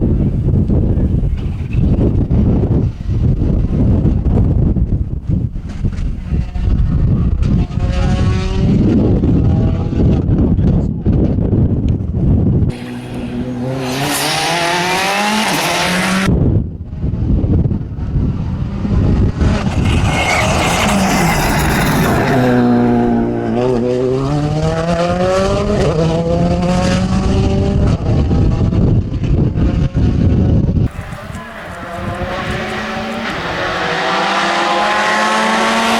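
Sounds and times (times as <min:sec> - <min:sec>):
wind on microphone: 0:00.0 - 0:35.9
rally car engine revving: 0:05.6 - 0:10.8, 0:12.7 - 0:16.3, 0:16.9 - 0:35.9.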